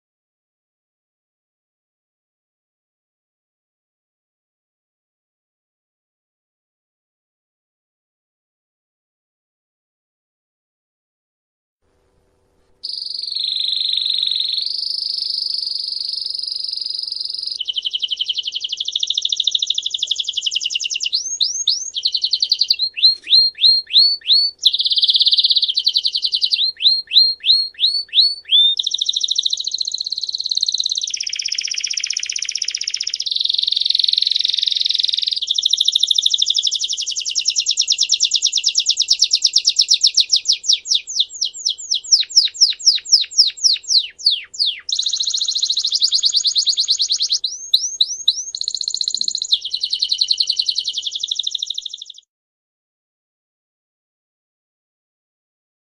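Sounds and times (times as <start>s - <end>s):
songbird trilling and chirping: 12.8s - 52.3s.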